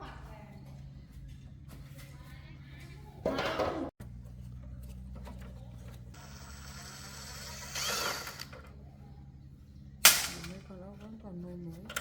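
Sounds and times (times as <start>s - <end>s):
steady low hum: 4.0s - 12.0s
mechanical handling noise: 10.0s - 12.0s.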